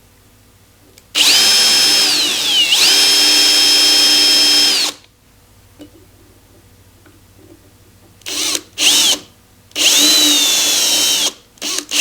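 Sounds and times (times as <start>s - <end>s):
power drill motor whine: 1.2s - 5.0s, 8.3s - 9.2s, 9.8s - 12.0s.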